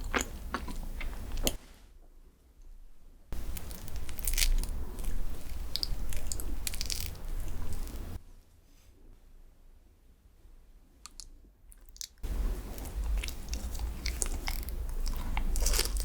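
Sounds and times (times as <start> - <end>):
wet chewing: 0.0 - 1.6, 3.4 - 8.2, 11.1 - 16.0
crunching bites: 3.4 - 8.2, 11.1 - 16.0.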